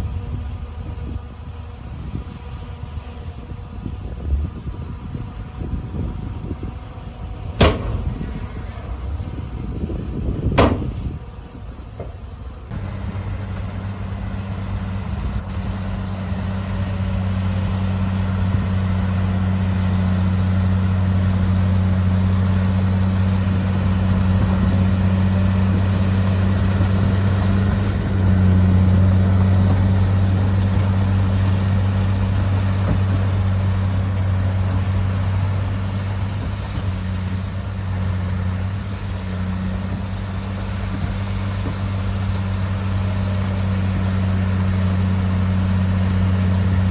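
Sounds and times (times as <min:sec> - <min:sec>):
bulldozer diesel engine droning: 0:00.0 - 0:46.9.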